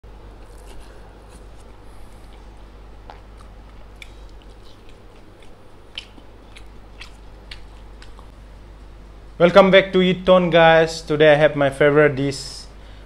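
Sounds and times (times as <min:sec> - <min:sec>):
steady low hum: 0:00.0 - 0:13.0
man chewing open-mouthed: 0:00.3 - 0:08.4
lip smacks: 0:00.5 - 0:08.4.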